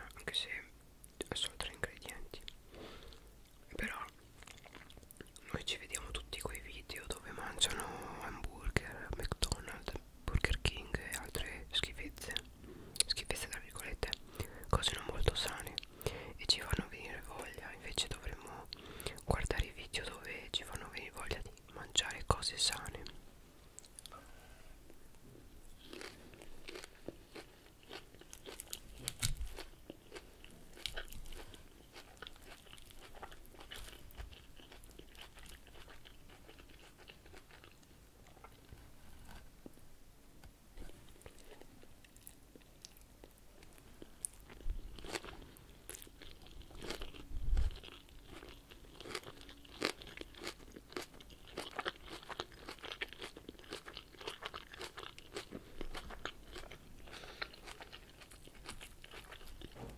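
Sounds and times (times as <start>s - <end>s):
crunching lettuce salad: 25.7s - 39.4s, 43.7s - 59.9s.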